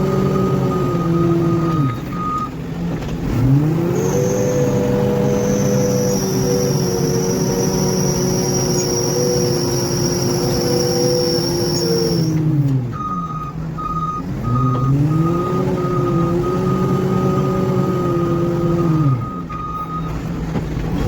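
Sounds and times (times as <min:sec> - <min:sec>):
reversing alarm beeping: 0:00.0 - 0:02.6, 0:04.2 - 0:12.4, 0:13.0 - 0:18.0, 0:18.8 - 0:20.2
heavy diesel engine running: 0:00.0 - 0:21.0.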